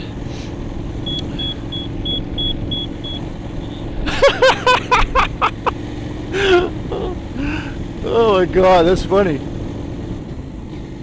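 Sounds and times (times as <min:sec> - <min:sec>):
motorcycle engine running: 0:00.0 - 0:11.0
burst of laughter: 0:04.0 - 0:05.8, 0:06.4 - 0:07.2.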